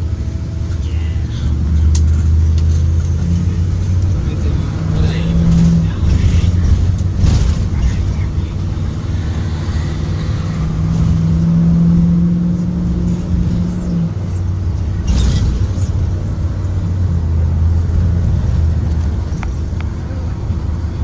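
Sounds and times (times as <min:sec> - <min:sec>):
bus engine running: 0:00.0 - 0:21.0.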